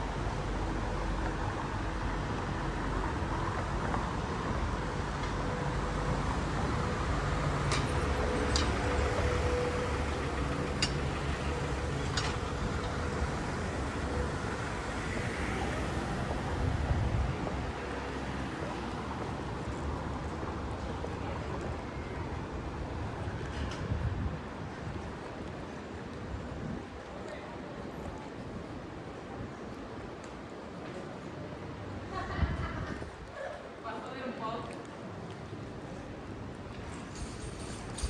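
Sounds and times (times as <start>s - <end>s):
road traffic hum: 0.0s - 38.0s.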